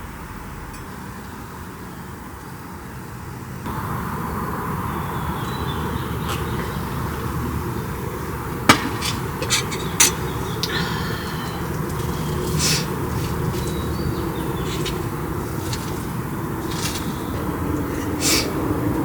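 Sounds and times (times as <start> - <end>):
low rumbling noise: 0.0 - 19.0
sharp knocks: 8.7 - 12.5.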